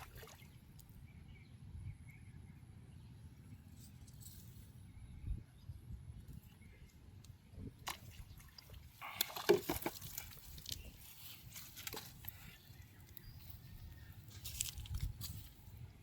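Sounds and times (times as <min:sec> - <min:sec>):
water splashing and dripping: 0:00.0 - 0:00.9, 0:07.8 - 0:12.3.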